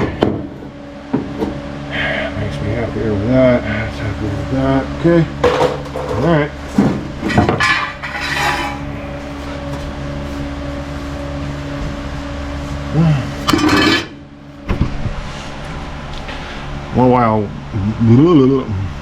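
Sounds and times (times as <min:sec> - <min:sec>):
steady mechanical hum: 0:00.0 - 0:19.0
metal clanking: 0:05.4 - 0:10.3, 0:13.4 - 0:14.8.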